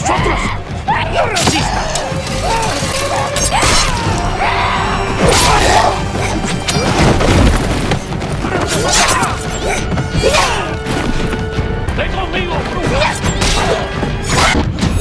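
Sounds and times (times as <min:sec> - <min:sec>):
action film music: 0:00.0 - 0:15.0
crashes and heavy impacts: 0:06.8 - 0:09.4.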